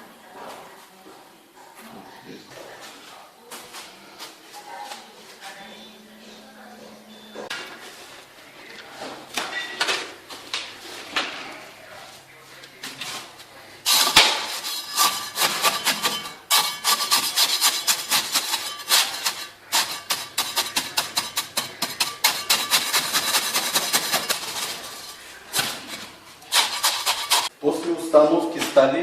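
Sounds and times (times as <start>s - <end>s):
rapid hand tool scraping: 13.9s - 27.5s.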